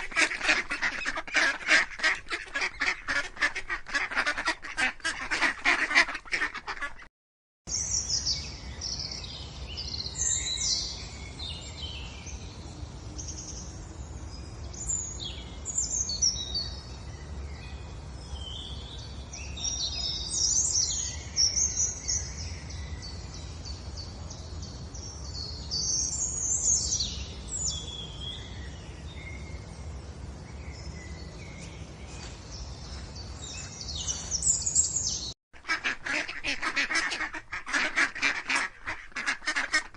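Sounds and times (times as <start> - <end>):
ducklings peeping: 35.7 - 39.9.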